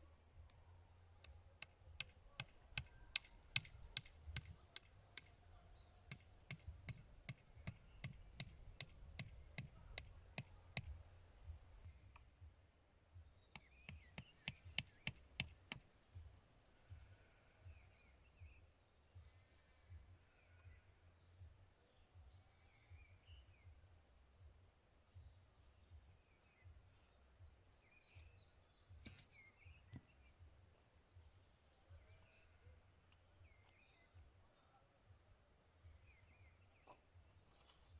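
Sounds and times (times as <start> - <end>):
faint songbirds chirping: 0.0 - 37.9
sharp clicks: 0.4 - 5.4.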